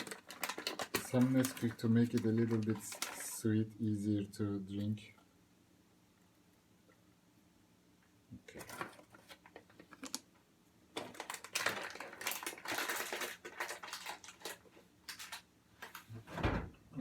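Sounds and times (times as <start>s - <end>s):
tin and spoon rattling: 11.0s - 15.4s.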